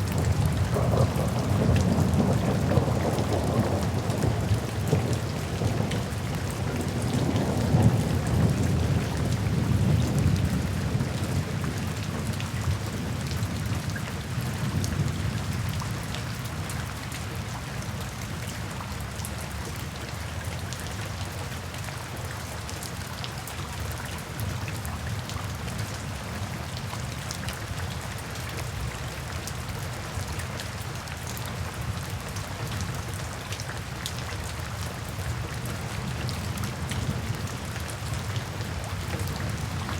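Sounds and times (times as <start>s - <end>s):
thunder rumble: 0.0s - 11.2s
rain falling: 0.0s - 39.9s.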